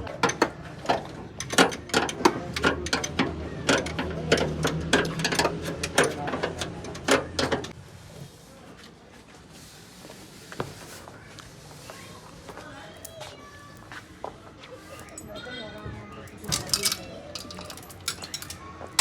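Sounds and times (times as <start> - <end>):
faint workshop background: 0.0 - 19.0
metal tools knocking on engine parts: 0.1 - 7.7, 15.0 - 19.0.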